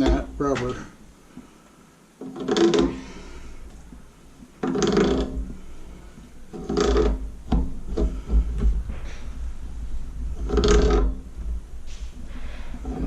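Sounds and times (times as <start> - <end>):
wrench scraping metal on metal: 2.2 - 3.2, 4.6 - 5.6, 6.5 - 7.3, 10.4 - 11.2, 12.7 - 13.0.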